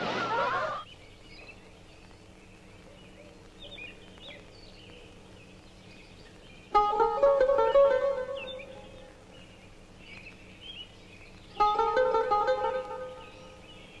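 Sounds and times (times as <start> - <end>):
low steady hiss: 0.0 - 14.0
faint bird chirps: 0.7 - 14.0.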